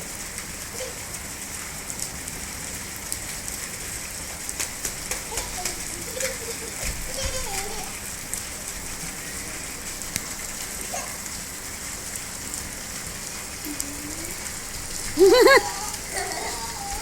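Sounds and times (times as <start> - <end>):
steady rain falling: 0.0 - 17.0
child's high call: 10.9 - 11.2, 15.4 - 17.0.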